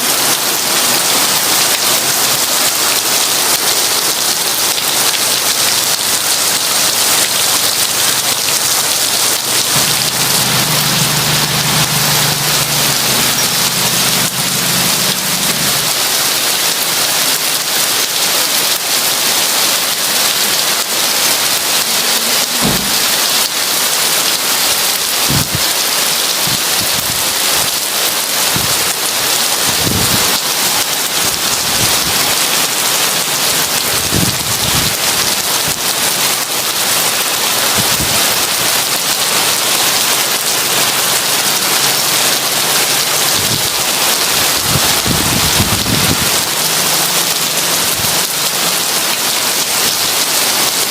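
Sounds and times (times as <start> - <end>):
heavy rain: 0.0 - 50.9.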